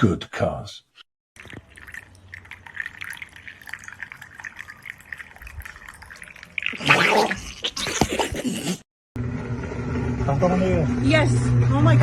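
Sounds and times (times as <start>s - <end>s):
liquid dripping and splashing: 1.4s - 8.2s.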